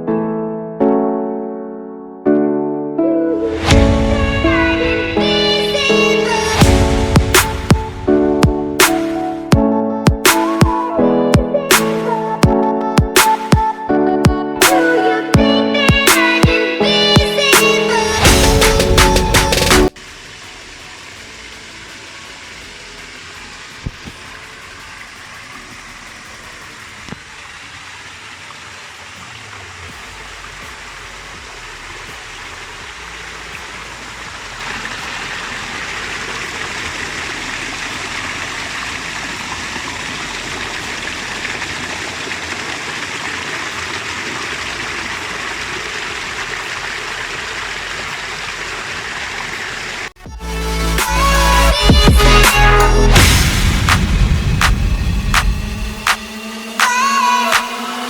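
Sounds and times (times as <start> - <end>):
stream and waterfall rushing: 3.4 - 9.5, 15.9 - 50.2, 52.4 - 58.0.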